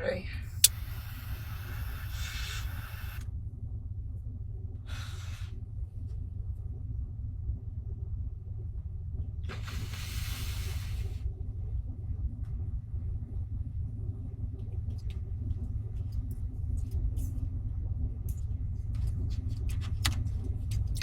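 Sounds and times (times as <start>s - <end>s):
car low rumble: 0.0s - 21.0s
faint clicks: 0.6s - 3.2s
hiss: 0.6s - 3.2s, 4.9s - 5.5s, 9.5s - 11.2s.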